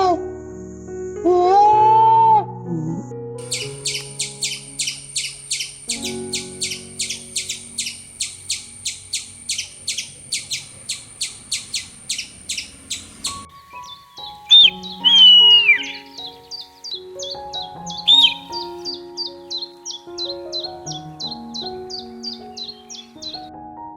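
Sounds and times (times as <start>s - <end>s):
background music: 0.0s - 10.1s, 13.2s - 23.9s
high rapid chirping: 7.0s - 18.7s
short sharp call: 14.5s - 16.0s.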